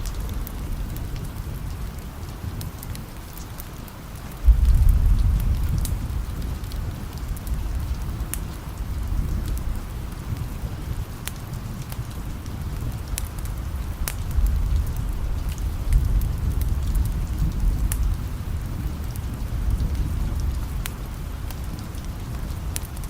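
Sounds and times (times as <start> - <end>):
steady rain: 0.0 - 23.0
wood fire crackling: 0.0 - 23.0
distant thunder rumble: 4.4 - 11.0, 12.3 - 22.7.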